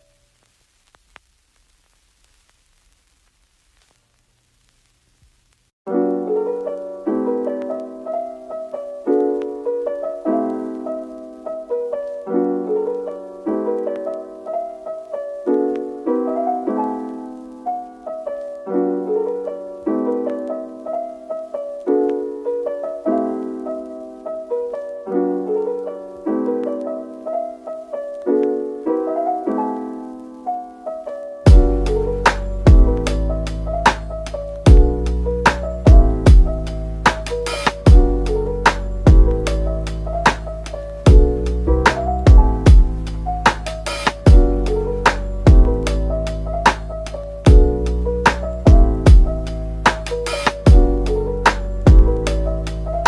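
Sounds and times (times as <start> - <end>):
gentle piano music: 5.9 - 53.0.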